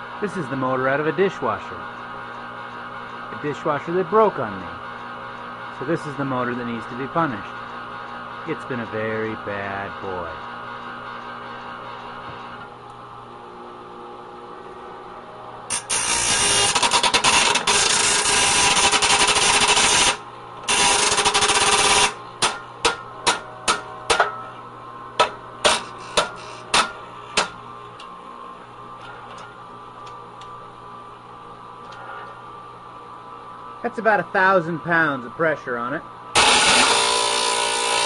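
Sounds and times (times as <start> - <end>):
steady machine hum: 0.0 - 38.0
power press running: 14.8 - 29.7, 36.3 - 38.0.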